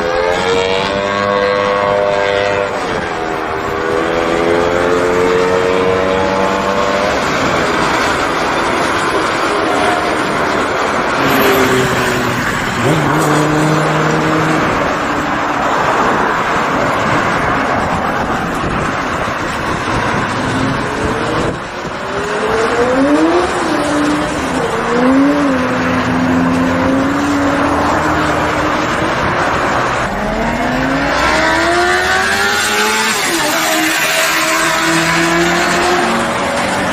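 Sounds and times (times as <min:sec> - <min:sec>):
motorcycle engine revving: 0:00.0 - 0:15.0
road and wind noise: 0:00.0 - 0:36.9.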